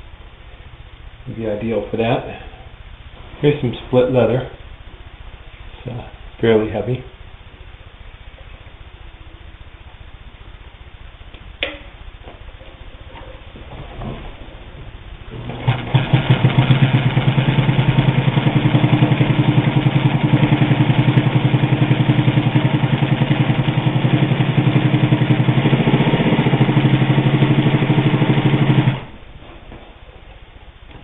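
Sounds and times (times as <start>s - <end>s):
sewing machine stitching leather: 15.3s - 29.2s.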